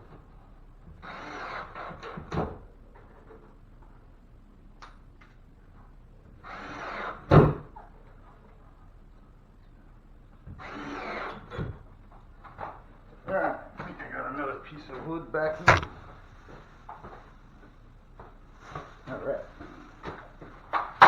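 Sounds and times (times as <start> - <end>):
scraping and rustling: 15.6 - 17.3
sharp knocks on wood: 15.7 - 16.0.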